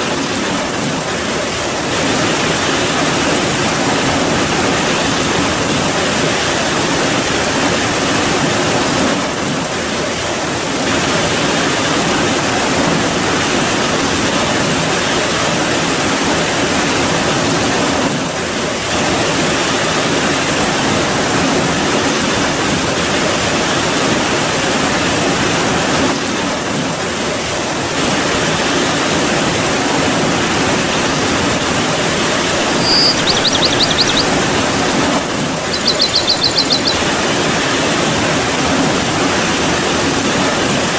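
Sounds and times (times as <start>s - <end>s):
short high trill: 32.6s - 34.6s.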